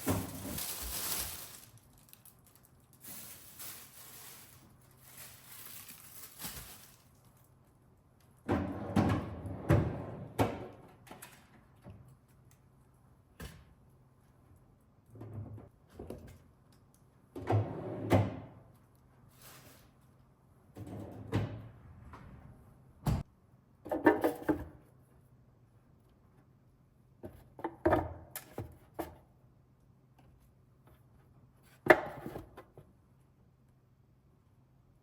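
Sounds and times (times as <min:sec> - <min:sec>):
kitchen items knocking and clattering: 0:00.0 - 0:01.8.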